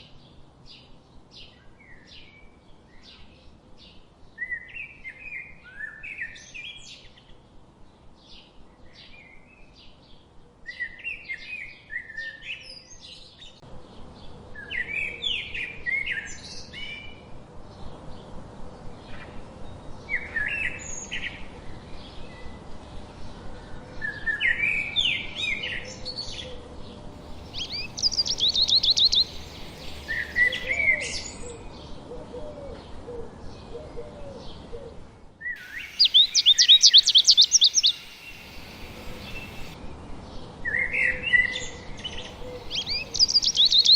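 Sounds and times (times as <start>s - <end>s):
faint outdoor hiss: 0.0s - 43.9s
songbirds chirping: 0.0s - 43.9s
fast high bird trill: 27.2s - 30.7s, 35.6s - 39.8s, 42.4s - 43.9s.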